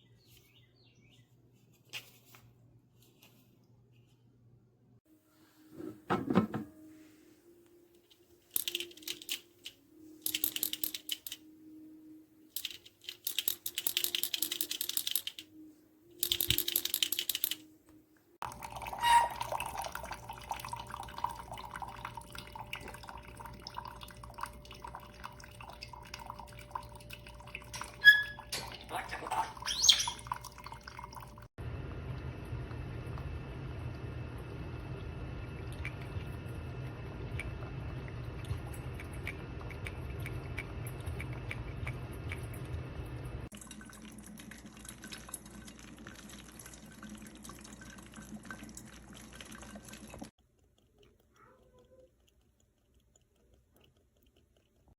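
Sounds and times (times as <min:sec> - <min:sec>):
coffee maker water hissing and gurgling: 0:18.4 - 0:28.2, 0:30.3 - 0:50.4.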